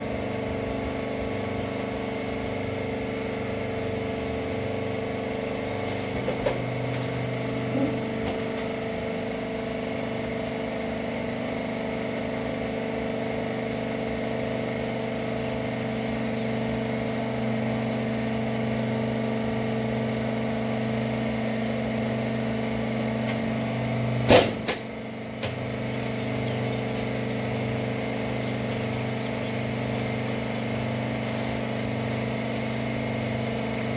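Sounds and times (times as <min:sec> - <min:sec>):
hydraulic power unit humming: 0:00.0 - 0:33.9
loud machine clunk: 0:24.2 - 0:25.8.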